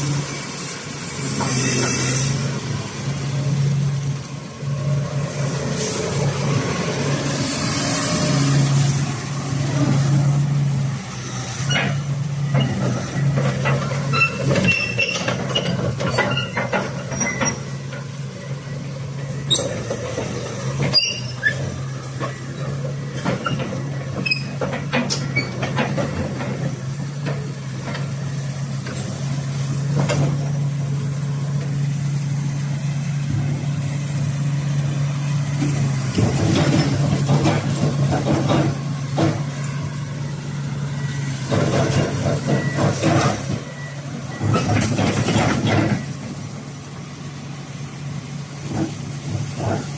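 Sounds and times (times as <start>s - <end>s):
excavator diesel engine running: 0.0s - 49.9s
sharp knocks and clanks: 23.1s - 28.2s, 35.5s - 39.8s, 41.3s - 46.3s.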